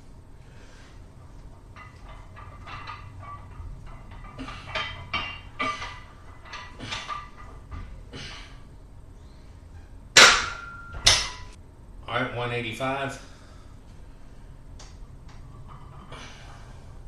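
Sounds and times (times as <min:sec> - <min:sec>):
barbell knocking: 0:00.6 - 0:11.6.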